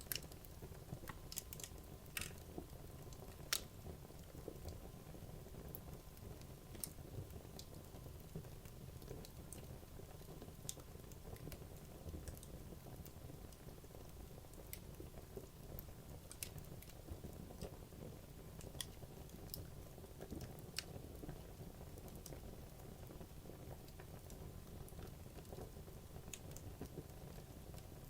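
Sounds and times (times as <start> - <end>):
burning wood crackling: 0.0 - 4.8.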